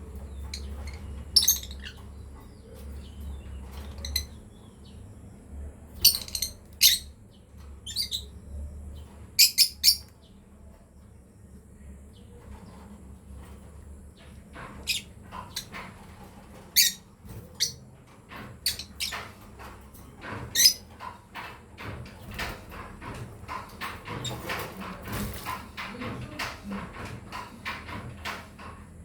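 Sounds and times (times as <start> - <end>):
lovebirds chirping: 0.0 - 5.4, 6.0 - 10.4
scratchy knocking and rustling: 12.3 - 29.0.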